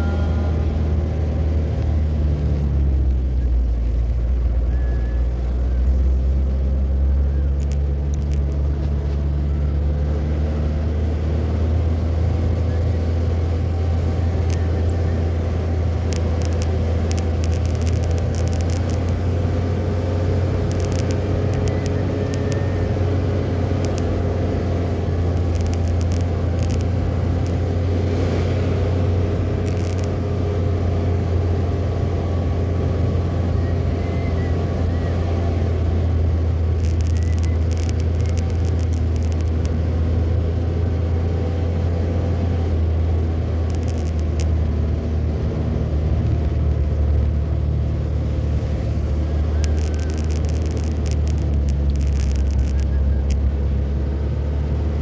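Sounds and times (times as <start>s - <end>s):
car engine and road rumble: 0.0s - 55.0s
light clicks: 15.9s - 19.7s, 20.5s - 23.0s, 23.7s - 24.2s.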